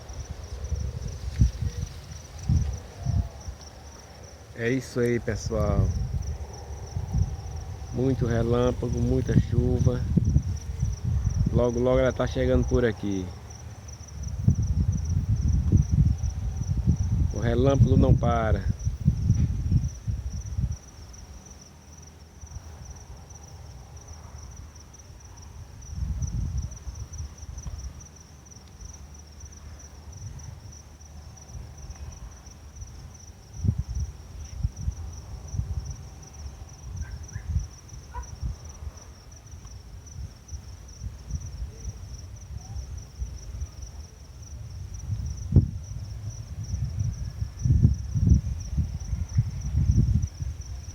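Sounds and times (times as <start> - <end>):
low rumbles: 0.0 - 20.8
crickets trilling: 0.0 - 50.9.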